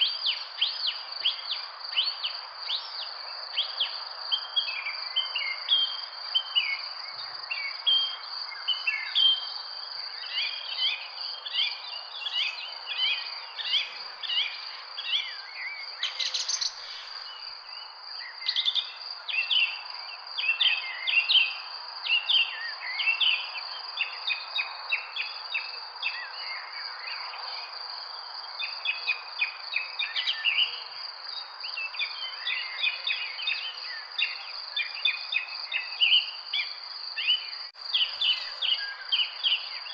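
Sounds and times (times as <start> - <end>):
background hiss: 0.0 - 20.5, 36.8 - 39.9
birds chirping: 10.2 - 19.5, 37.2 - 39.9.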